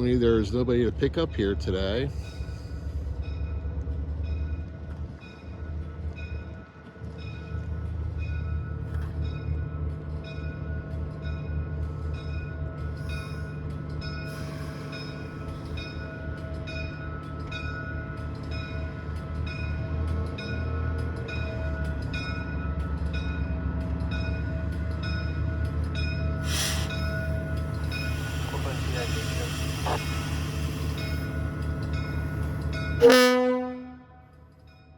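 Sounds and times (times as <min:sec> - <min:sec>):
diesel engine drone: 0:26.4 - 0:33.9.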